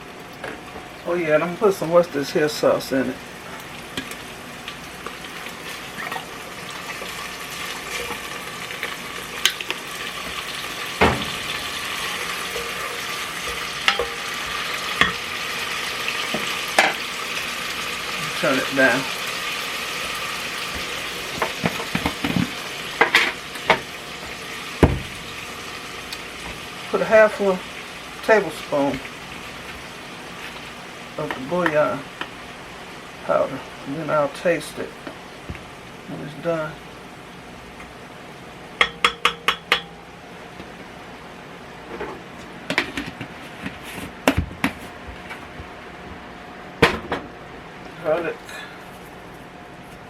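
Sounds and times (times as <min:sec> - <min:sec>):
meat sizzling: 0:00.0 - 0:40.6
utensil scraping pot: 0:06.9 - 0:17.0
spoon tapping rim of cooking pot: 0:38.8 - 0:40.0.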